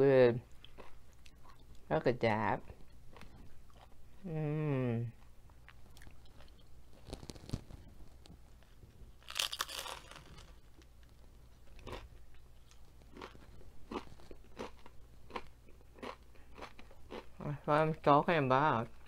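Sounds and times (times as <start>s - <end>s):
crunchy chewing: 5.2s - 17.4s
tortilla chip crunch: 6.0s - 7.8s, 9.2s - 17.4s.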